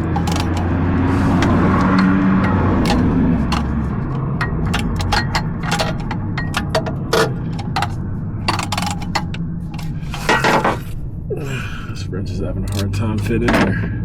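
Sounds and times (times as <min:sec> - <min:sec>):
metal hand tools clinking: 0:00.0 - 0:11.0
steady low hum: 0:00.0 - 0:14.0.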